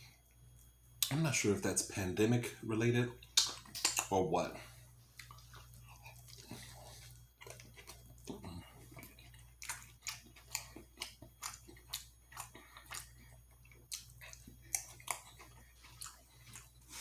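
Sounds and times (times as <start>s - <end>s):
faint low hum: 0.0s - 17.0s
chewing and mouth clicks: 3.2s - 4.1s, 5.0s - 17.0s.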